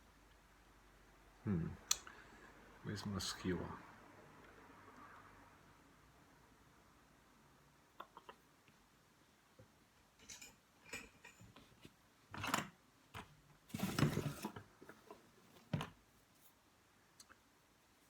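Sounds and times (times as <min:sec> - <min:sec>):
rustling and scraping: 0:13.2 - 0:16.6.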